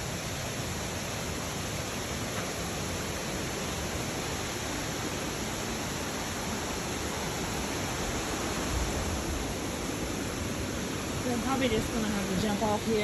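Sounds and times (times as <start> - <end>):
low wind buffet: 3.2 - 13.0
wind noise on microphone: 7.9 - 10.3.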